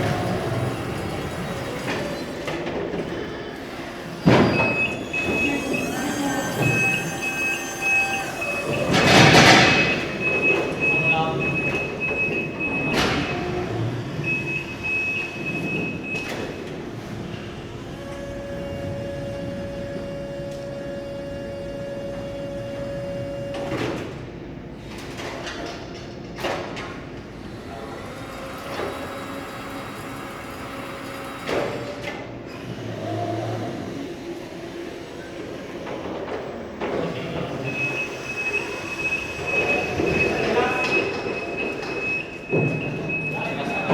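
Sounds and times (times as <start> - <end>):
high steady beep: 4.5 - 13.5
electric motor whine: 4.9 - 9.3.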